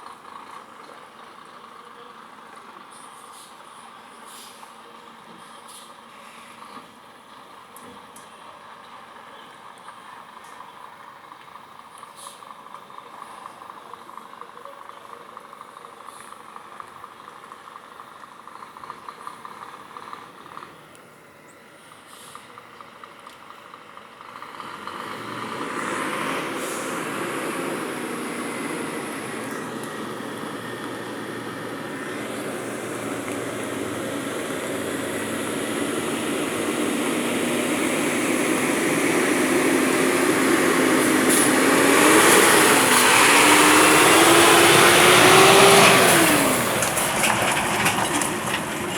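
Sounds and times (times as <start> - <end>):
truck diesel engine running: 12.5 - 48.9.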